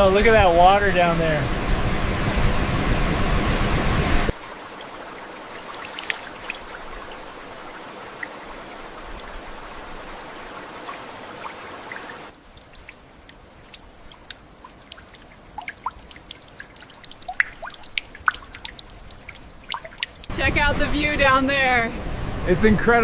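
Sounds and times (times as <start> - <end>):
water dripping and trickling: 4.3 - 20.3
rushing water: 4.3 - 23.0.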